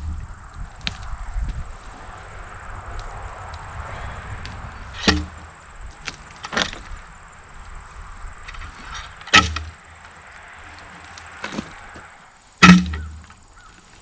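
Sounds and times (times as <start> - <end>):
wooden knocks and thuds of log: 5.0 - 5.4, 6.0 - 6.9, 8.5 - 9.8, 11.4 - 11.8, 12.6 - 13.4.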